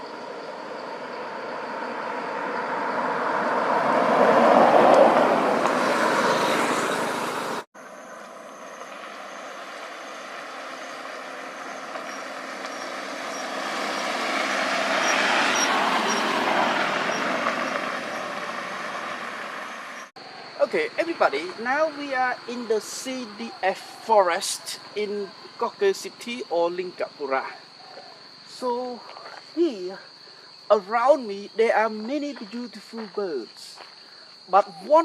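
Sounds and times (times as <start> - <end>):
vehicle driving rushing noise: 0.1 - 20.2.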